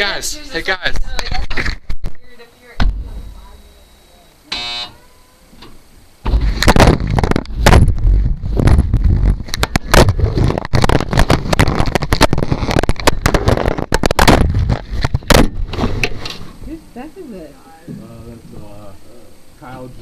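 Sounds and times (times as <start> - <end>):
camera clattering in drum: 9.6 - 16.4.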